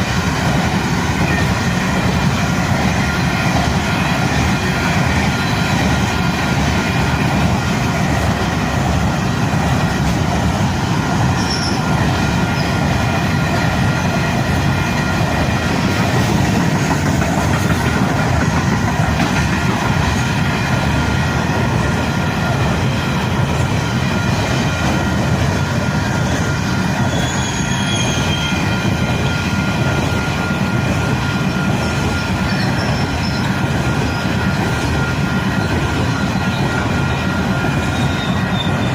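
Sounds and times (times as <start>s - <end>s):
high wheel squeal: 0.0s - 38.9s
train wheels rumbling on rail: 0.0s - 38.9s.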